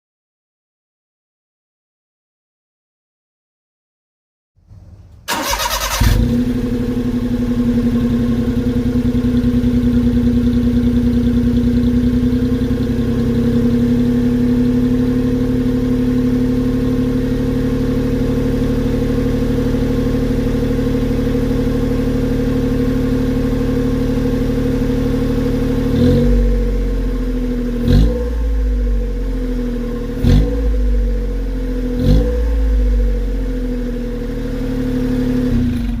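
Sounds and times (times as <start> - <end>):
engine revving in short blips: 4.6 - 6.7
truck engine idling: 4.7 - 14.8.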